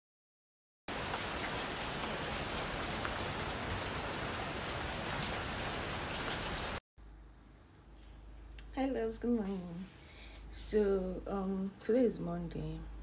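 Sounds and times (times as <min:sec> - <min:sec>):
steady rain falling: 0:00.9 - 0:06.8.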